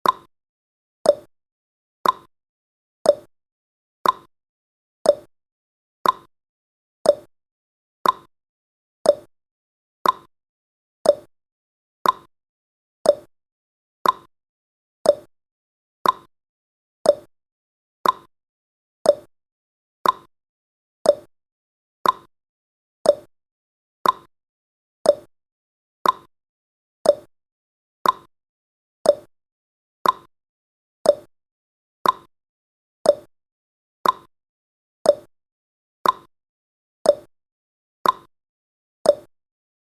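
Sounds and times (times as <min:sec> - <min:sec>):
clock ticking: 0:02.0 - 0:02.3, 0:06.0 - 0:06.3, 0:08.0 - 0:08.3, 0:10.0 - 0:10.3, 0:12.0 - 0:12.3, 0:14.0 - 0:14.3, 0:15.1 - 0:15.3, 0:16.0 - 0:16.3, 0:18.0 - 0:18.3, 0:20.0 - 0:20.3, 0:21.1 - 0:21.3, 0:22.0 - 0:22.3, 0:24.0 - 0:24.3, 0:25.1 - 0:25.3, 0:26.0 - 0:26.3, 0:27.1 - 0:27.3, 0:28.0 - 0:28.3, 0:29.1 - 0:29.3, 0:30.0 - 0:30.3, 0:31.1 - 0:31.3, 0:32.0 - 0:32.3, 0:34.0 - 0:34.3, 0:36.0 - 0:36.3, 0:38.0 - 0:38.3.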